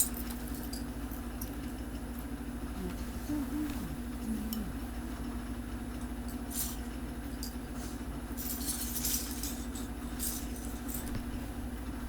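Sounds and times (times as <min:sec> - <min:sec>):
steady low hum: 0:00.0 - 0:12.0
plastic pieces rattling: 0:08.4 - 0:11.0.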